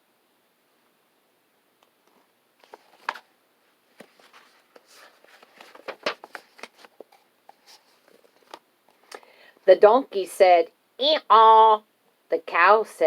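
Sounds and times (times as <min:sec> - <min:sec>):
paper rustling and clicking: 0:02.6 - 0:03.3, 0:03.9 - 0:08.6.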